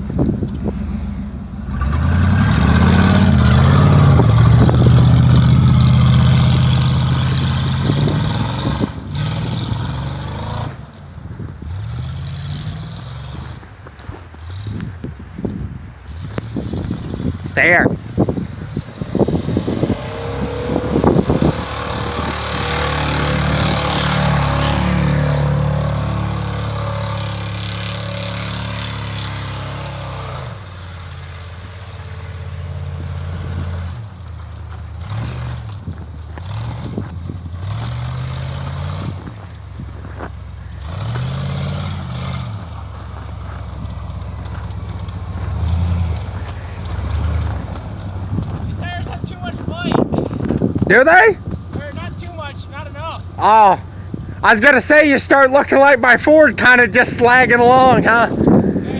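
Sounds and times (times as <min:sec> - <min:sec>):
truck engine revving: 0:00.0 - 0:11.0, 0:11.6 - 0:58.9
strong rushing noise: 0:14.6 - 0:30.7.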